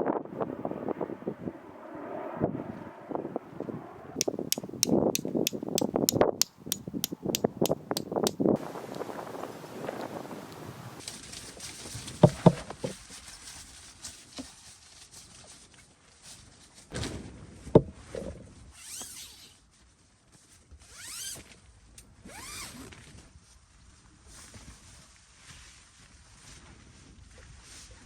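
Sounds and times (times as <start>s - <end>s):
zip-like rustles of tent gear: 18.6s - 19.7s, 20.6s - 23.4s.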